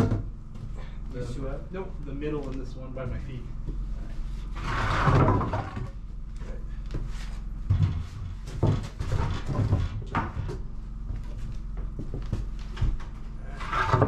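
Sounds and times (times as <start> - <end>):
heavy woodstove knocks and clunks: 0.0 - 0.7, 7.6 - 10.7.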